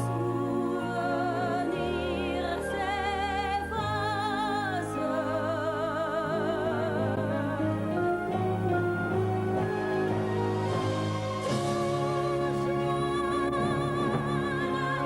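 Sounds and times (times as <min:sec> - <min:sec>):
singing with wide vibrato: 0:00.0 - 0:15.0
sustained instrumental accompaniment: 0:00.0 - 0:15.0.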